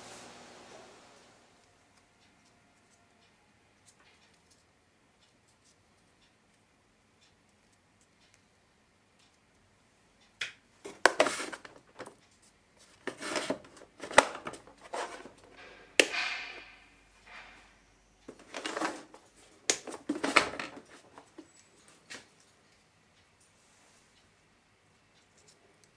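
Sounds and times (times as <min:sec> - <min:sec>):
hand tool scraping: 0:12.9 - 0:17.7
sharp clicks or knocks: 0:14.0 - 0:17.7.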